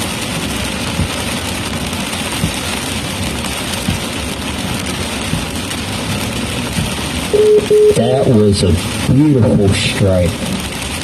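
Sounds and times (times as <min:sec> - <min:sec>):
car road and engine noise: 0:00.0 - 0:11.0
soft low thump: 0:03.8 - 0:04.1.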